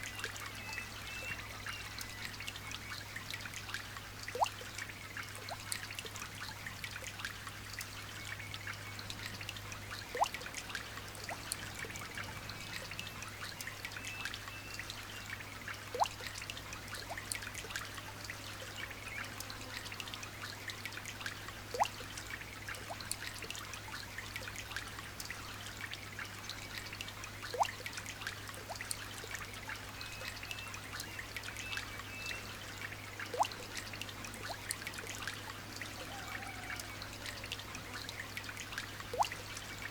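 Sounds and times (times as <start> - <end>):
light rain dripping: 0.0 - 39.9
water drop plinking: 39.1 - 39.4.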